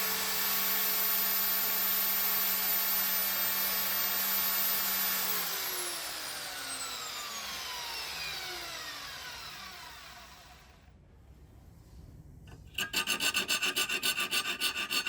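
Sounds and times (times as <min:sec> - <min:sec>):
power tool motor whining: 0:04.2 - 0:10.7.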